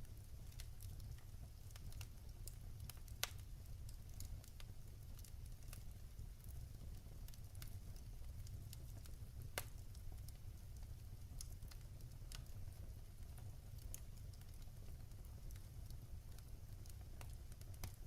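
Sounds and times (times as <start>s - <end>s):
fire crackling and popping: 0.0s - 18.0s
low fire rumble: 0.0s - 18.0s.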